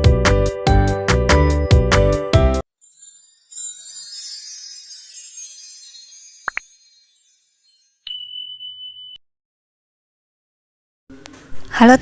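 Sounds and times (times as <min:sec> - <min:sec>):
steady high tone: 0:02.8 - 0:09.2.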